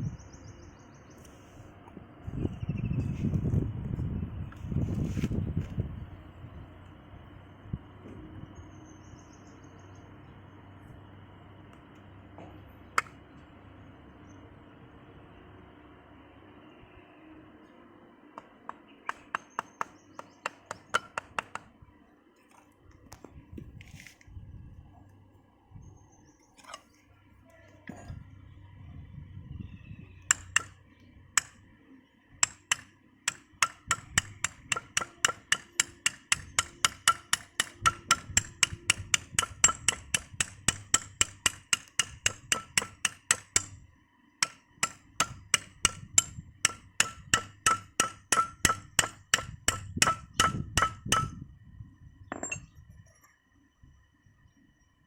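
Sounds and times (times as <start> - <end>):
hammer striking metal: 30.3 - 30.8, 32.4 - 43.8, 44.4 - 51.4.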